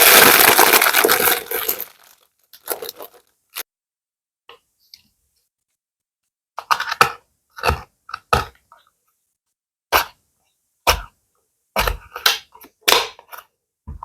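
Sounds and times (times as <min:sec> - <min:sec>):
crisp crinkles and rustles: 0:00.0 - 0:03.3.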